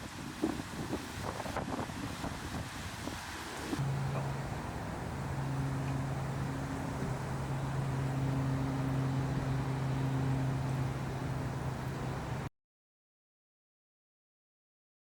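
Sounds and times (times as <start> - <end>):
outdoor background noise: 0.0 - 12.5.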